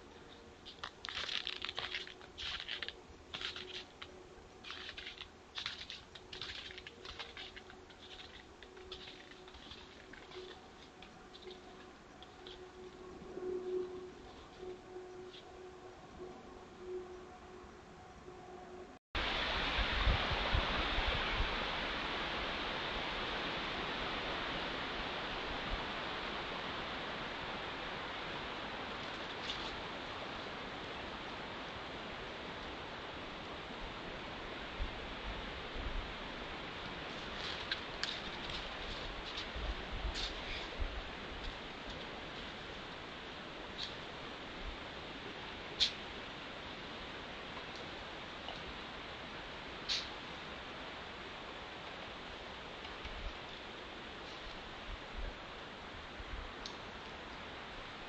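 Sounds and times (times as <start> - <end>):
rushing outdoor noise: 0.0 - 58.0
footsteps crunching in snow: 0.3 - 13.0, 36.9 - 42.8.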